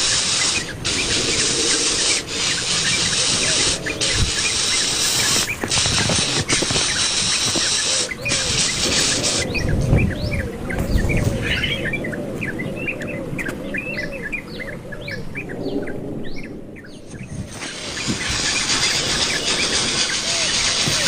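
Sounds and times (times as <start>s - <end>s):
steady high hiss: 0.0s - 10.6s, 16.9s - 21.0s
nestlings cheeping: 0.0s - 11.2s, 16.8s - 21.0s.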